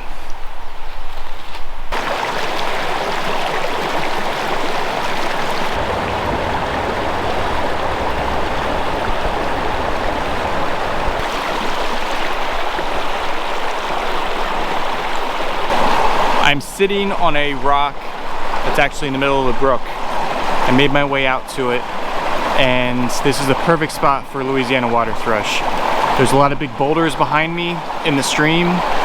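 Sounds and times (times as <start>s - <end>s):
brook rushing over rocks: 1.9s - 17.9s.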